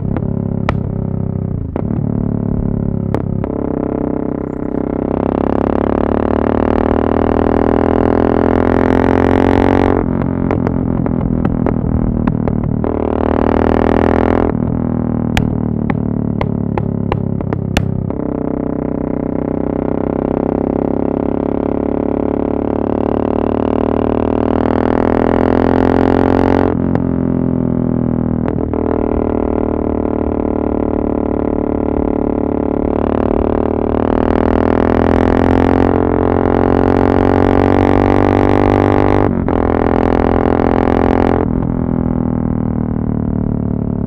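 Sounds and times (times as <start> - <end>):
exhaust cracks: 0.0 - 4.8, 10.0 - 13.1, 14.5 - 18.3
motorcycle engine running: 0.0 - 44.0.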